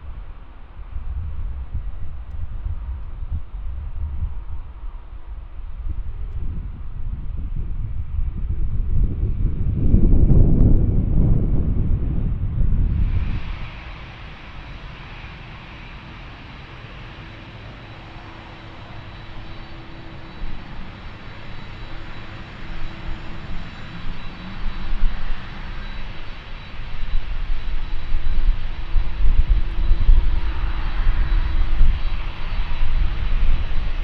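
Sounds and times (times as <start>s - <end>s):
jet engines rushing: 0.0s - 34.0s.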